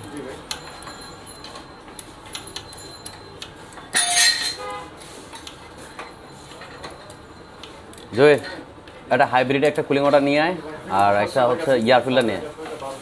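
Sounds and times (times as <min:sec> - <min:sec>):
metal clang: 0:03.9 - 0:04.8.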